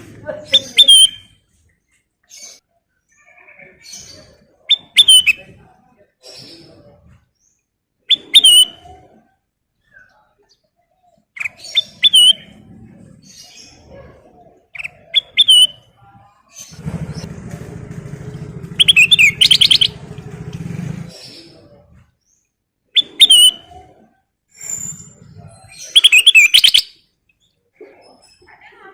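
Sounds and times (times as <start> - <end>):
low rumble: 16.7 - 22.1
bulbul chirping: 18.6 - 20.6.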